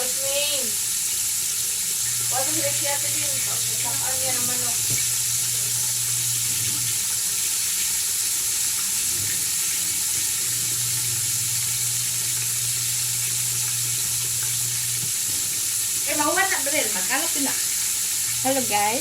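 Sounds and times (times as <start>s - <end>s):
chicken frying in hot oil: 0.0s - 19.0s.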